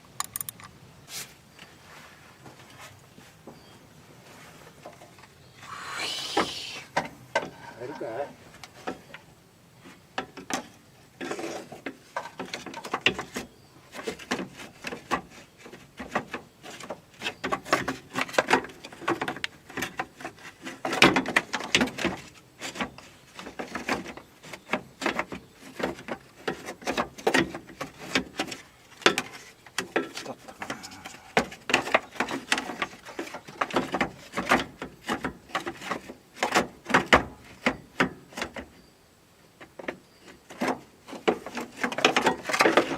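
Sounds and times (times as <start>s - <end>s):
hand tools and parts clicking: 0.0s - 0.8s.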